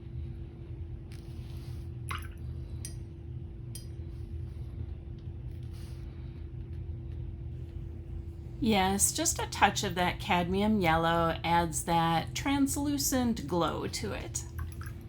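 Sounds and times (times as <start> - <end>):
steady low hum: 0.0 - 15.0
small water drips: 2.1 - 3.0, 14.4 - 15.0.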